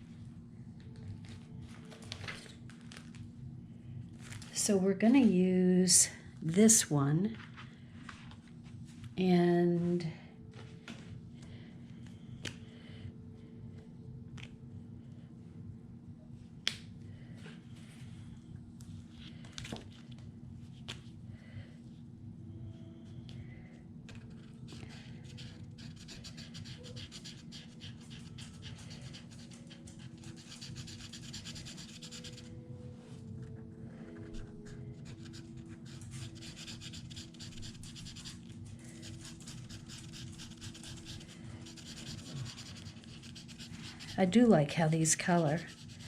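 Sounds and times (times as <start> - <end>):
marker scratching on wood: 25.3 - 32.5, 35.1 - 44.4.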